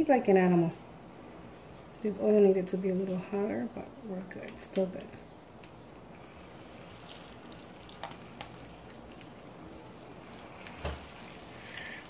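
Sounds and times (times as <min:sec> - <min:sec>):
faint sizzle of frying: 0:06.1 - 0:12.0
oil popping: 0:06.1 - 0:12.0.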